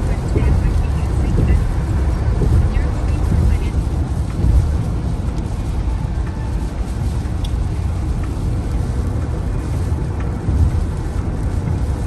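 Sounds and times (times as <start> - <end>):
deep rumble: 0.0 - 12.0
heavy rain falling: 0.0 - 12.0
faint ticks: 3.5 - 12.0.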